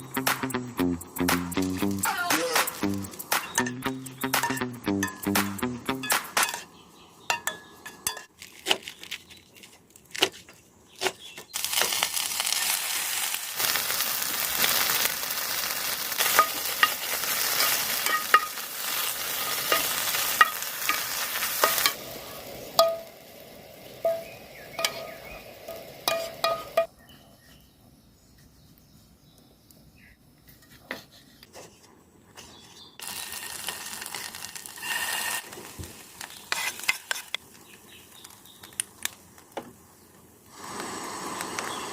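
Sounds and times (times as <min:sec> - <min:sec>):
food sizzling in a frying pan: 0:11.5 - 0:26.9, 0:33.0 - 0:38.8, 0:40.5 - 0:41.9.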